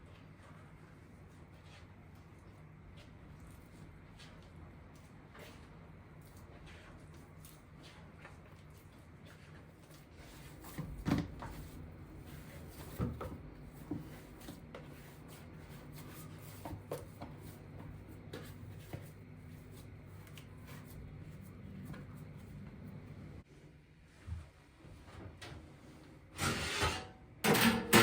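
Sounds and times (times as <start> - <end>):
steady low hum: 10.1 - 23.8
kitchen knocks and clunks: 27.4 - 28.0.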